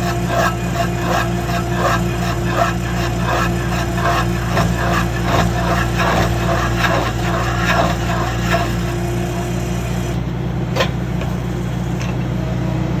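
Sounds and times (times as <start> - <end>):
stump planer grinding wood: 0.0 - 10.2
low machine drone: 0.0 - 13.0.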